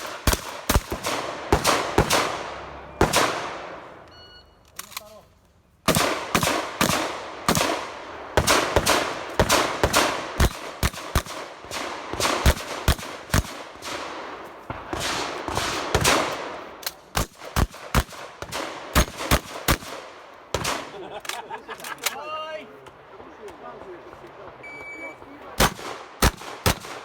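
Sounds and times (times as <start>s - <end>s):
shotgun shots echoing: 0.0s - 4.0s, 5.9s - 21.1s, 25.5s - 27.0s.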